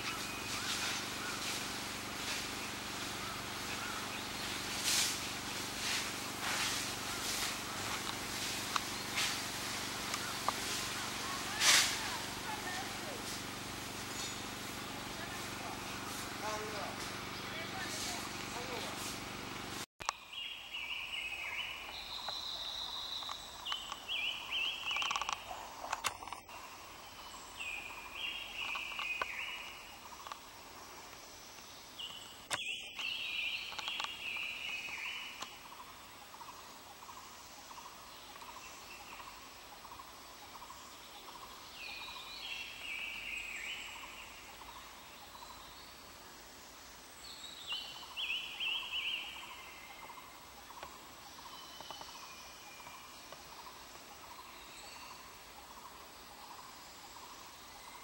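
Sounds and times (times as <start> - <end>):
birds chattering calls: 0.0 - 46.3, 47.0 - 58.0
songbird singing falling notes: 27.1 - 30.4, 32.0 - 35.6.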